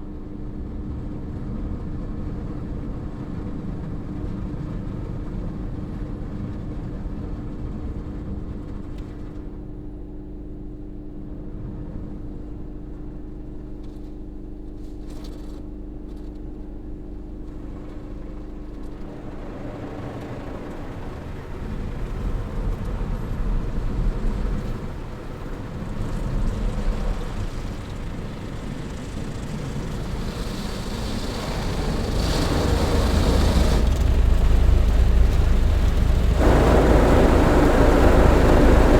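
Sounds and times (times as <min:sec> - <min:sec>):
car wash machinery hum: 0:00.0 - 0:38.9
car wash rushing noise: 0:17.5 - 0:38.9.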